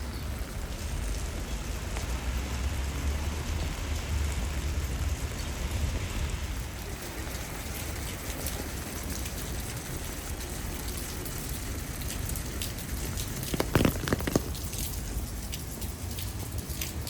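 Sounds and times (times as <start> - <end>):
steady rain falling: 0.0 - 17.0
loud sharp taps: 13.4 - 14.8.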